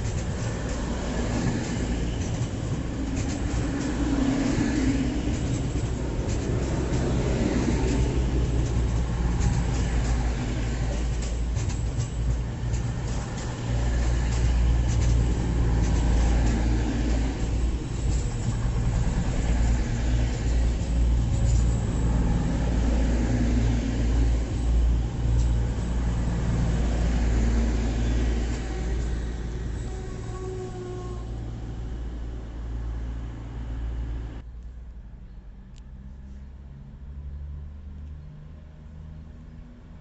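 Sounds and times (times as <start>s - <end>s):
diesel train engine drone: 0.0s - 40.0s.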